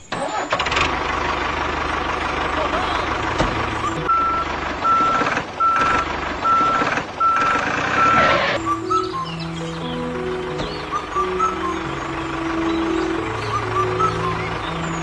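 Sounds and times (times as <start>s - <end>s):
vehicle engine running: 0.2s - 15.0s
truck reversing alarm beeping: 0.9s - 15.0s
background music: 8.6s - 15.0s.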